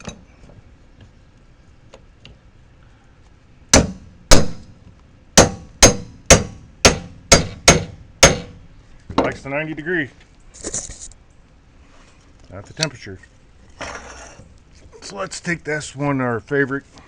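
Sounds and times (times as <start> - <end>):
hammer clanging on metal: 5.4 - 8.6.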